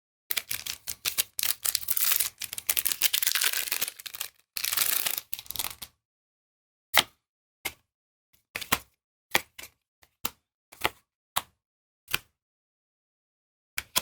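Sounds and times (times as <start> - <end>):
cards and packs crinkling: 0.3 - 5.9.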